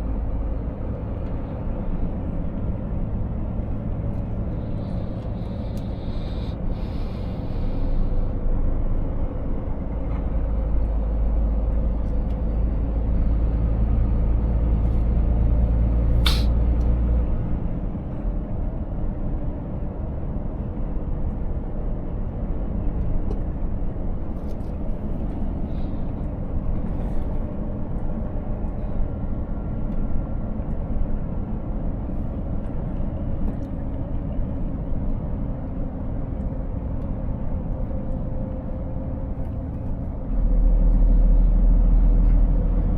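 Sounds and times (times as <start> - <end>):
road noise: 0.0 - 42.9
truck diesel engine drone: 0.0 - 42.9
sharp hiss: 16.2 - 16.6.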